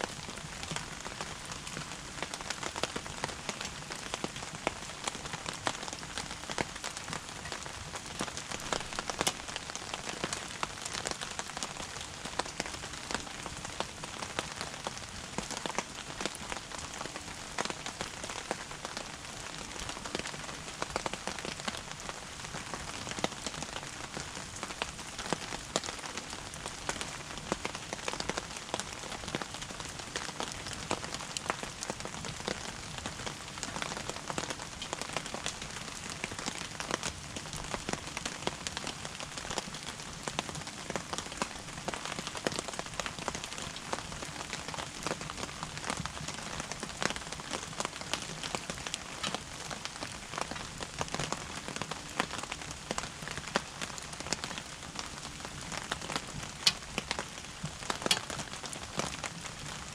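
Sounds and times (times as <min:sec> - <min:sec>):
wood fire crackling: 0:00.1 - 0:59.9.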